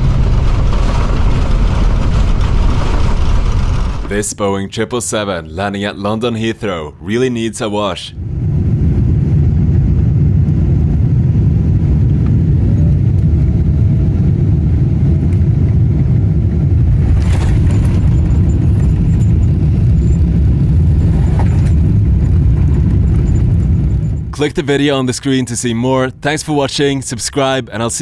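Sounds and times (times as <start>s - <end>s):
jet engines rumbling: 0.0s - 28.0s
faint rising whine: 8.1s - 25.3s.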